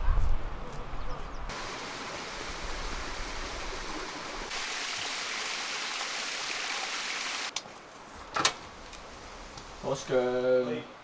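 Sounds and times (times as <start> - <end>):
stream running: 1.5 - 7.5.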